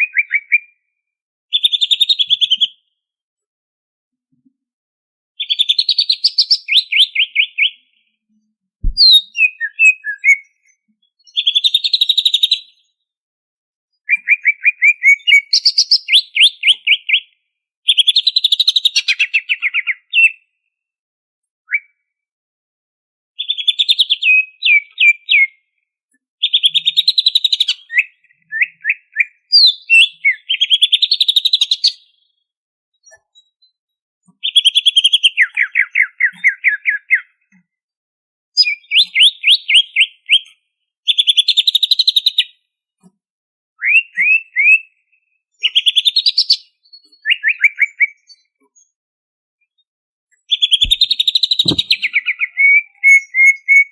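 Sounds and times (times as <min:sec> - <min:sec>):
bird singing trilled phrases: 0:00.0 - 0:00.8, 0:01.5 - 0:02.8, 0:05.4 - 0:08.1, 0:08.9 - 0:12.9, 0:14.0 - 0:17.3, 0:23.4 - 0:25.5, 0:26.4 - 0:32.0, 0:38.6 - 0:40.5, 0:50.4 - 0:53.9
short knock: 0:08.8 - 0:09.1, 0:50.8 - 0:52.0.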